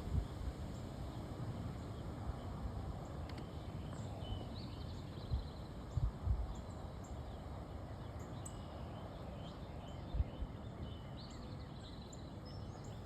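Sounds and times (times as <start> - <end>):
outdoor background hiss: 0.0 - 13.0
small birds chirping: 0.1 - 13.0.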